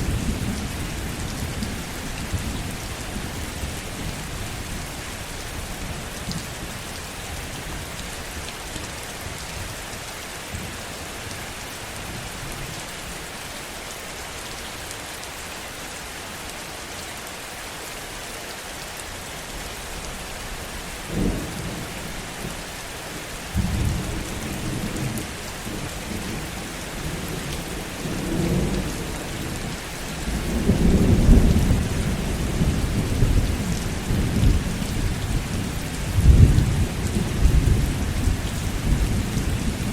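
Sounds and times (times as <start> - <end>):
heavy rain: 0.0 - 39.9
thunder crack and rumble: 30.3 - 39.9.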